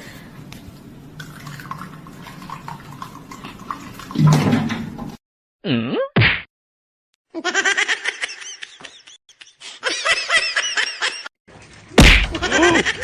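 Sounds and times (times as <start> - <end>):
high-pitched laughter: 7.4 - 11.3, 12.3 - 13.0.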